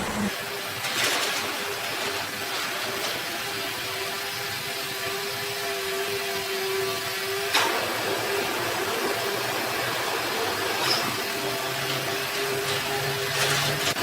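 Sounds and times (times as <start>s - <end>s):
sawmill saw humming: 0.0s - 0.5s.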